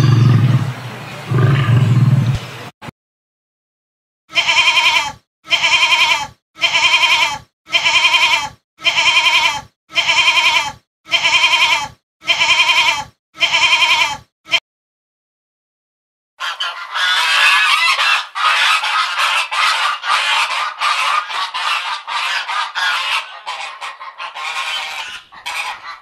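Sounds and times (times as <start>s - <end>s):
goat bleating: 4.3s - 14.6s.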